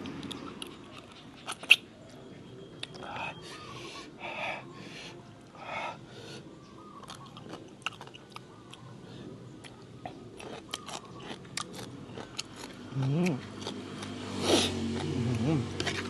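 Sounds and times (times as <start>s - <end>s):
person chewing crunchy food: 0.0s - 1.9s, 7.0s - 8.9s, 9.6s - 16.0s.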